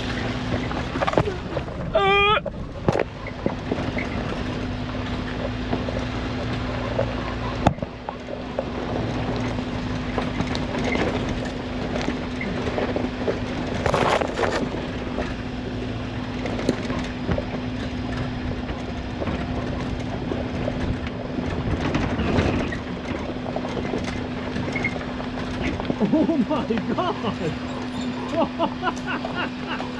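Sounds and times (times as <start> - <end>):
tyre and body noise: 0.0 - 4.7
knocks and rattles: 0.0 - 15.4, 16.4 - 29.9
car engine hum: 0.0 - 29.9.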